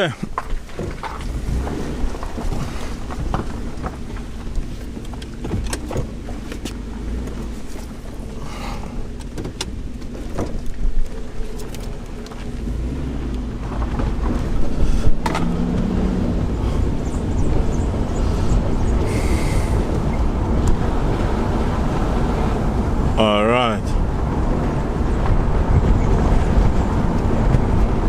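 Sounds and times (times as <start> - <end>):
car engine and tyre rumble: 0.0 - 28.0
sharp knocks and rattles: 0.2 - 8.1, 9.1 - 12.6, 13.6 - 15.8.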